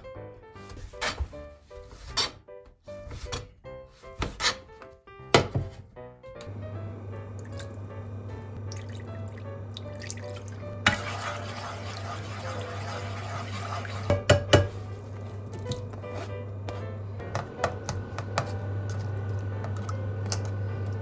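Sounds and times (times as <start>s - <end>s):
background music: 0.0s - 21.0s
water running from tap: 6.5s - 16.0s.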